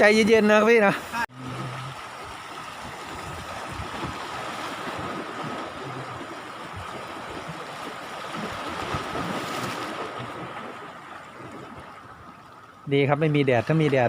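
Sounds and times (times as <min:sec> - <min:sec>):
surf washing on shore: 0:00.0 - 0:14.0
wind on microphone: 0:01.4 - 0:12.3.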